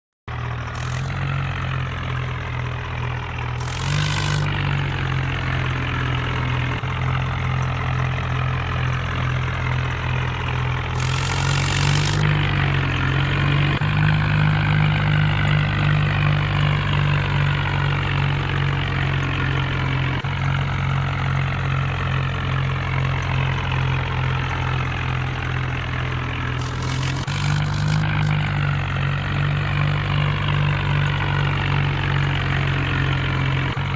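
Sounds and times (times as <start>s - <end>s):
hissing bursts: 0.8s - 1.2s, 3.6s - 4.6s, 11.0s - 12.5s, 26.6s - 28.3s.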